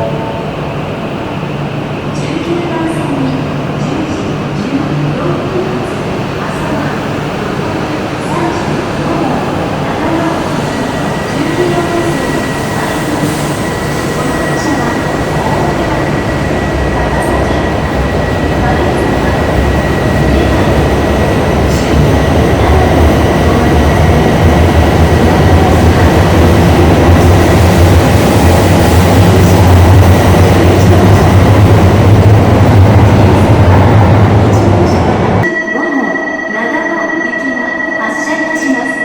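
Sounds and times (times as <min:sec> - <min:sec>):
train rumble: 0:00.0 - 0:35.4
high-pitched tone: 0:35.0 - 0:39.0.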